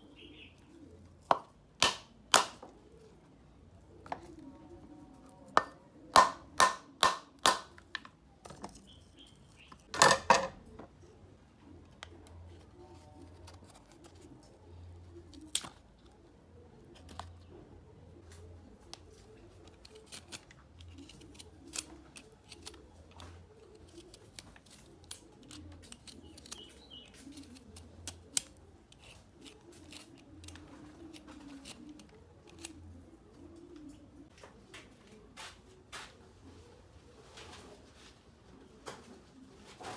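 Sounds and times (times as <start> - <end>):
dove cooing: 2.7 - 6.6, 9.6 - 39.9
kitchen clicks and snips: 18.9 - 32.9.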